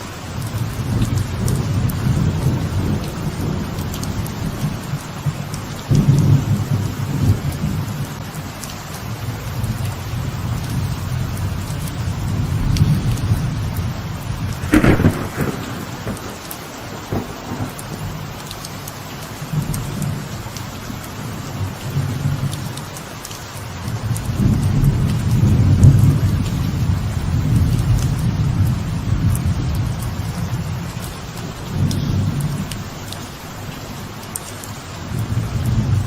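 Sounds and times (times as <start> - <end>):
light rain pattering: 0.0 - 36.0
rolling thunder: 14.3 - 18.4, 24.3 - 30.9
sharp thunder crack: 14.6 - 18.2.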